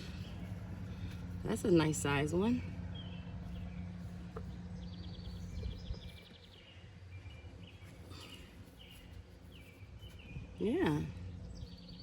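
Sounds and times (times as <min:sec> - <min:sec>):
low background rumble: 0:00.0 - 0:12.0
songbirds chirping: 0:00.0 - 0:12.0
steady low hum: 0:00.0 - 0:12.0.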